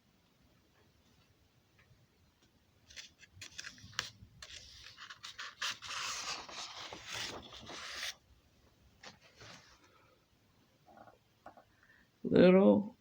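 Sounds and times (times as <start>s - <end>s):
rustling handling noise: 2.9s - 8.2s, 9.0s - 10.0s.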